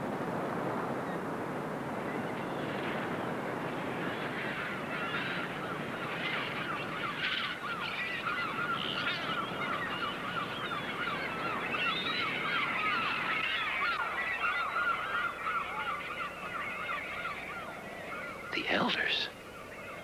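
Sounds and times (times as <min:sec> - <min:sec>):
seagulls calling: 0:04.1 - 0:20.0.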